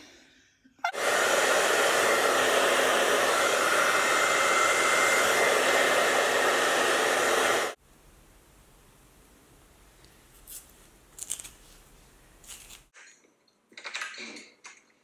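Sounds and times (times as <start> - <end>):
hair dryer running: 0.9 - 7.8.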